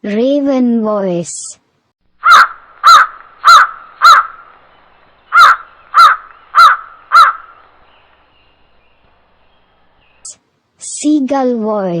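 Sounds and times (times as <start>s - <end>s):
raven cawing: 2.2s - 4.6s, 5.3s - 7.9s.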